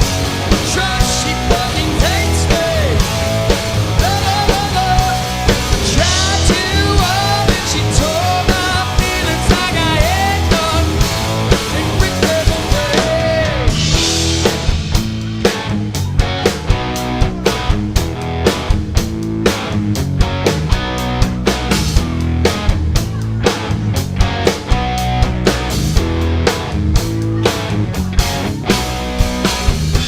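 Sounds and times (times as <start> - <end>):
person singing lead vocal: 0.0 - 14.3
bass guitar: 0.0 - 30.0
drum kit beat: 0.0 - 30.0
electric guitar: 0.0 - 30.0.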